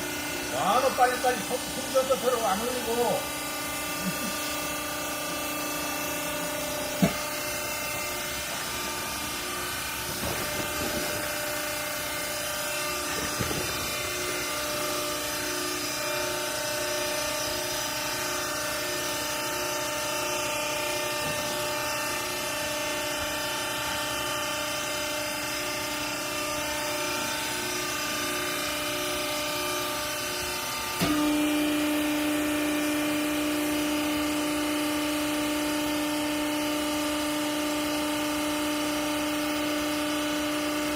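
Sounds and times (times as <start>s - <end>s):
baling press motor hum: 0.0s - 40.9s.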